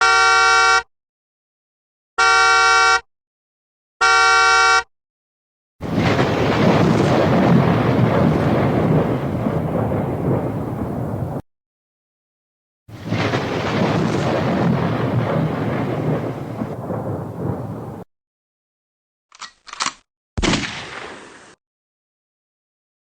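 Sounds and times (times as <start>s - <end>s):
electronic horn-like beeps: 0.0s - 0.9s, 2.2s - 3.1s, 4.0s - 4.9s
loud rumbling noise: 5.8s - 11.4s.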